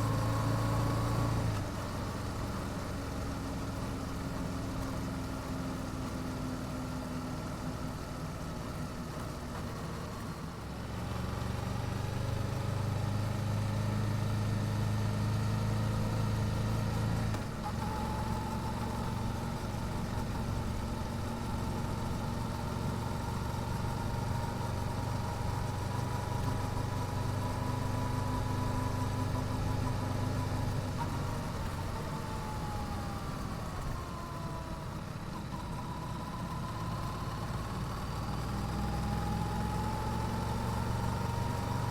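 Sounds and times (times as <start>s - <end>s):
motorcycle engine while riding: 0.0s - 41.9s.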